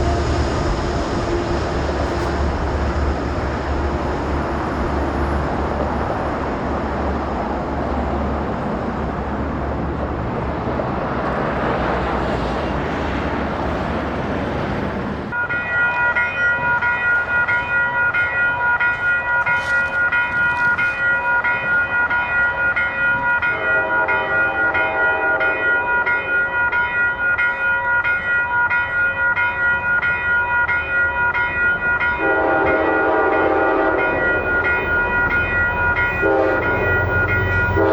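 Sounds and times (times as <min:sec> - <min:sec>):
crossing warning bell ringing: 0:00.0 - 0:07.3, 0:15.3 - 0:37.9
diesel train passing: 0:00.0 - 0:37.9.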